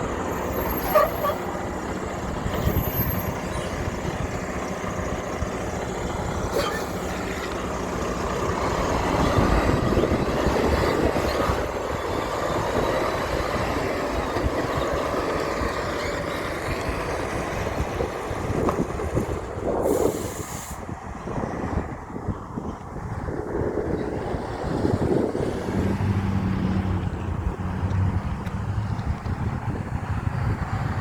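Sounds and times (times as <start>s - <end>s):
heavy truck passing: 0.0s - 31.0s
short hiss: 19.9s - 20.8s.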